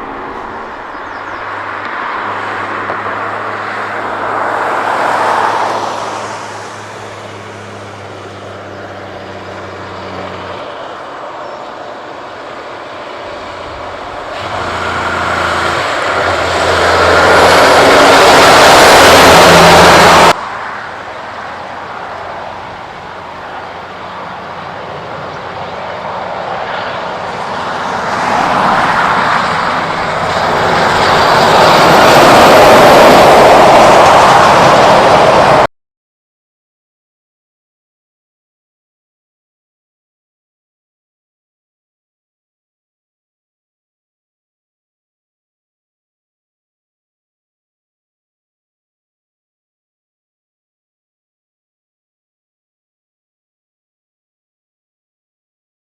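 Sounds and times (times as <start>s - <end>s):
trucks driving past: 0.0s - 35.7s.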